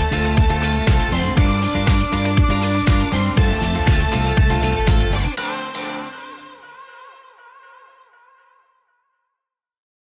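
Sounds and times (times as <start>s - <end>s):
electronic music with steady beat: 0.0s - 6.6s.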